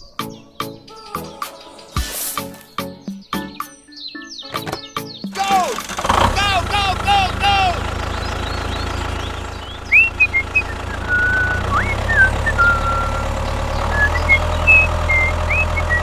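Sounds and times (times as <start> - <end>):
tractor engine idling: 4.6 - 16.0
high whistling chirps: 8.0 - 16.0.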